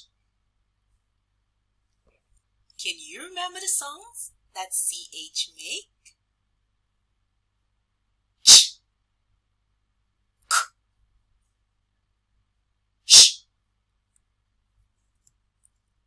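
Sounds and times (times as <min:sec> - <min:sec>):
person making breathy consonant sounds: 0:02.8 - 0:05.8.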